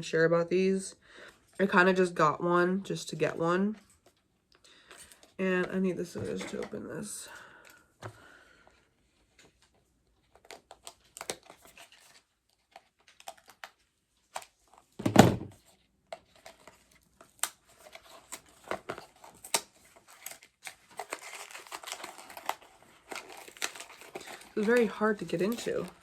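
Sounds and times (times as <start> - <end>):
loud thump: 15.0 - 15.5
packaging crinkling: 16.2 - 26.0.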